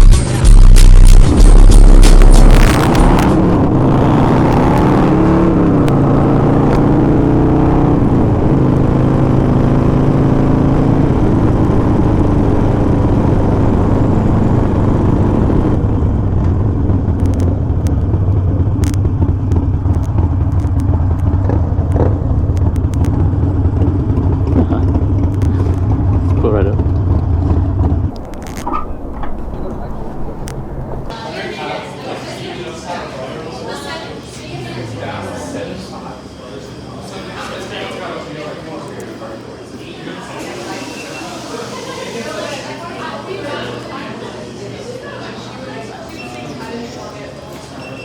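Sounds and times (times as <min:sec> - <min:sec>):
motorcycle engine revving: 0:00.0 - 0:31.2.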